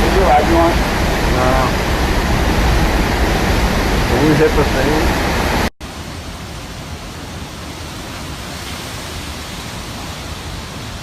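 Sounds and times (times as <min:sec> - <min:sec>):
hurricane wind: 0:00.0 - 0:11.0
rain: 0:00.0 - 0:11.0.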